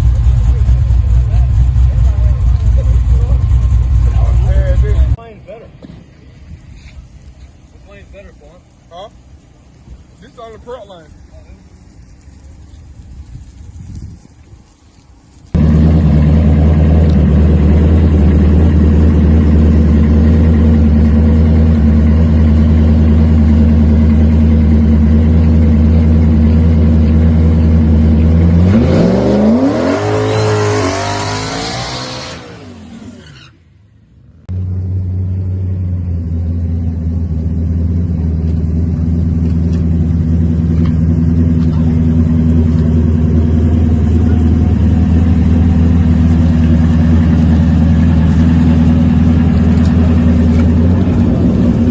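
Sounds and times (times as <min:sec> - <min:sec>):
second engine running loud: 0:15.6 - 0:33.2, 0:34.5 - 0:51.9
drag racing engine launching: 0:28.2 - 0:33.6.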